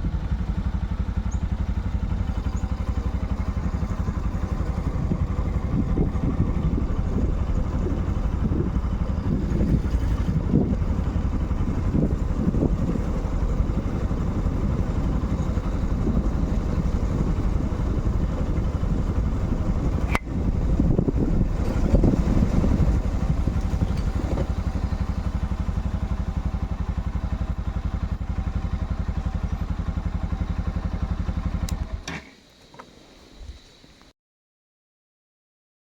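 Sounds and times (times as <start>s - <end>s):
motorcycle engine running: 0.0s - 32.2s
sharp click: 20.1s - 20.3s.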